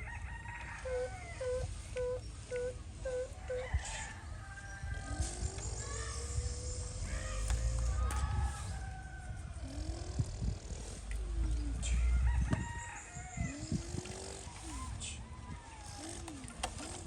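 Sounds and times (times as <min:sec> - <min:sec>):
animal calls: 0:00.8 - 0:04.2
steady low rumble: 0:04.2 - 0:15.2.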